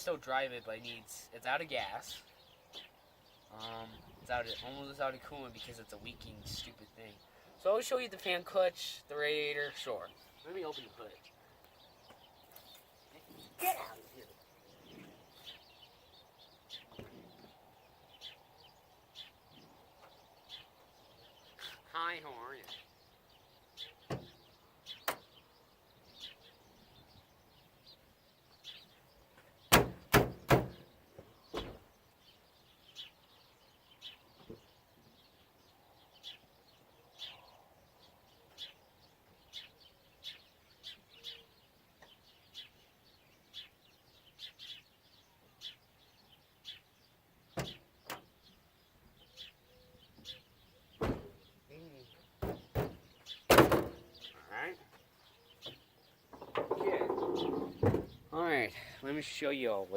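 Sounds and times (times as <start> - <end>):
bird chirping: 0.0 - 59.9
sharp knocks and clatter: 52.4 - 54.0, 56.3 - 58.2.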